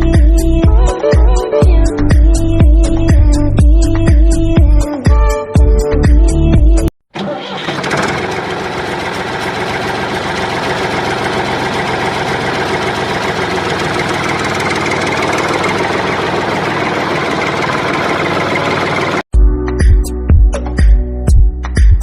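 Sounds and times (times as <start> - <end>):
tractor diesel engine idling: 7.2 - 19.2.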